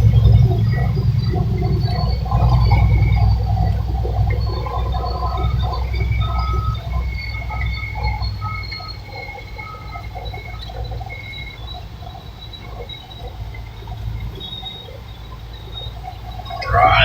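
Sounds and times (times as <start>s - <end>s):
heavy engine rumbling: 16.6s - 17.0s.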